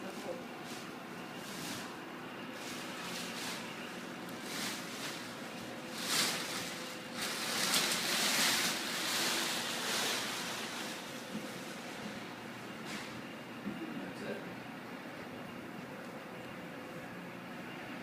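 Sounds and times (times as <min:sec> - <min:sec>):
plastic wrapping rustling: 0:02.5 - 0:11.9.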